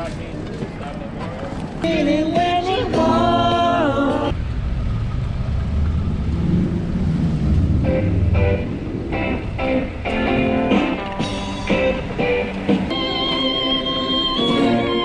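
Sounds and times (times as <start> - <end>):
vehicle low rumble: 0.0 - 2.7, 3.8 - 13.0.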